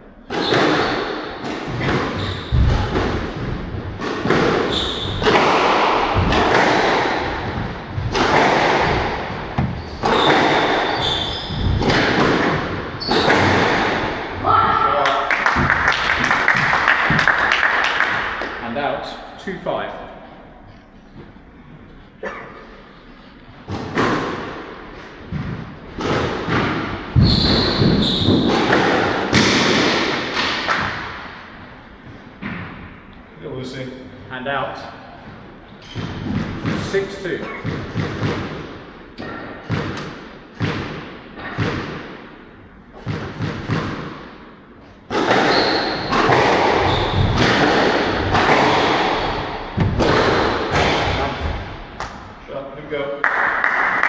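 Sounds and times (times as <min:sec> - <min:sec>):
squash ball hits: 0:00.3 - 0:14.5, 0:15.3 - 0:18.6, 0:23.7 - 0:31.5, 0:35.8 - 0:52.4
shoe squeaks: 0:02.2 - 0:02.7, 0:04.6 - 0:05.4, 0:09.5 - 0:12.0, 0:13.0 - 0:13.5, 0:27.2 - 0:28.5, 0:45.3 - 0:46.2, 0:46.8 - 0:47.4
high squeak: 0:09.8 - 0:11.6.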